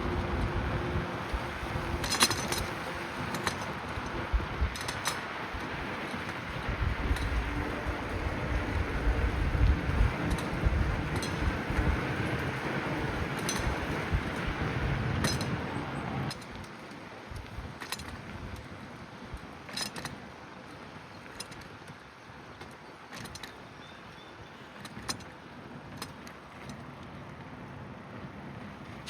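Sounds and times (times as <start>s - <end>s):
passing traffic: 0.0s - 16.6s, 24.8s - 29.0s
bicycle rattling and clicking: 0.0s - 29.0s
tyre and wind rush: 0.0s - 29.0s.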